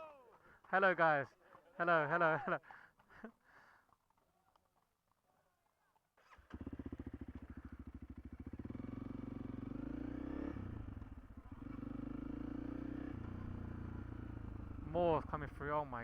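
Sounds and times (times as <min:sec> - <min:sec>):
motorcycle engine starting and revving: 0:06.2 - 0:16.0.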